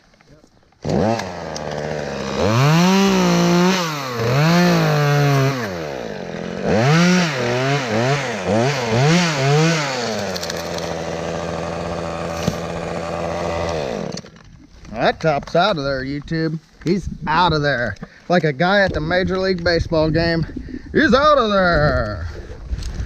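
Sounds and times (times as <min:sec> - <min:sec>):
chainsaw revving: 0:00.8 - 0:14.4.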